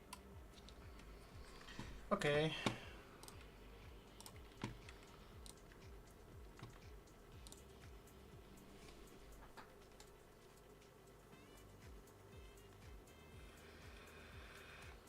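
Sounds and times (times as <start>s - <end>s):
keyboard and mouse clicks: 4.2s - 5.9s, 6.5s - 7.7s, 9.3s - 10.7s.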